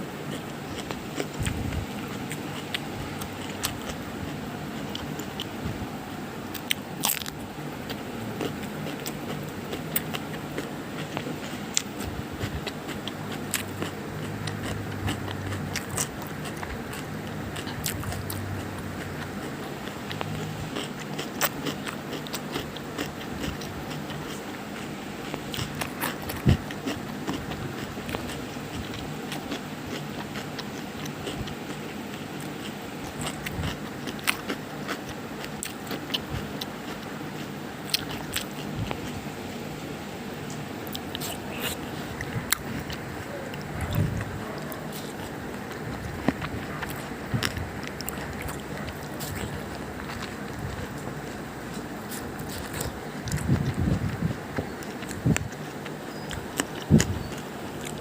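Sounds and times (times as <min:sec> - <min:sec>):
crisp crackling and crunching: 0:06.4 - 0:39.2.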